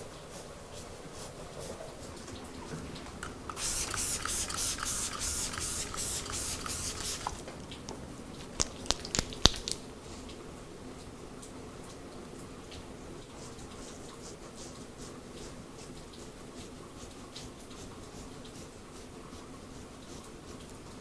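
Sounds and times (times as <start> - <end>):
spray bottle misting: 3.2 - 7.5.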